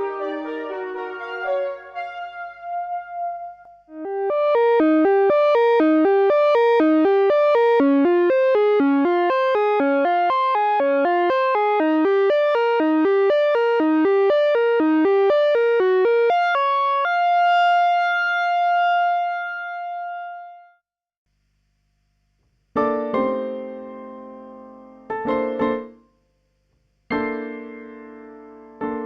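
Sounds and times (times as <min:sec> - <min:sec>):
keyboard chord struck: 0:00.0 - 0:06.3
electric piano arpeggio: 0:00.0 - 0:20.5.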